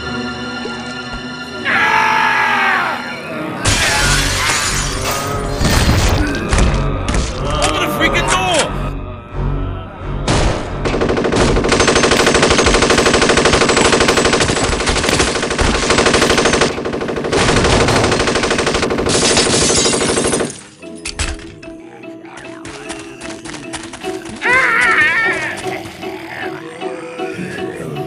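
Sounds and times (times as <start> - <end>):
submachine gun automatic fire: 10.9 - 20.6.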